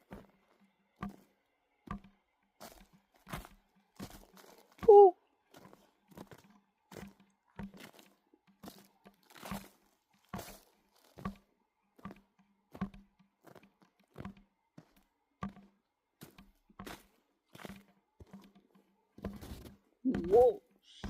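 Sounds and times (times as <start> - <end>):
footsteps crunching on frozen snow: 2.6 - 4.9, 5.5 - 11.4, 19.2 - 21.0.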